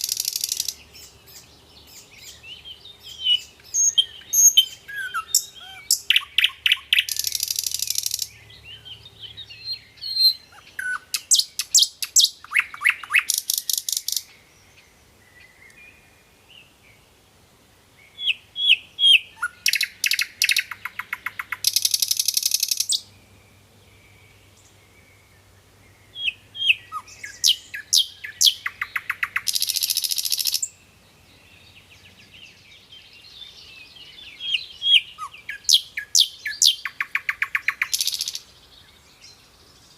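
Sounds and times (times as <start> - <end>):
flycatcher chirping and trilling: 0.0 - 14.3, 18.2 - 23.1, 26.2 - 30.8, 34.1 - 38.6.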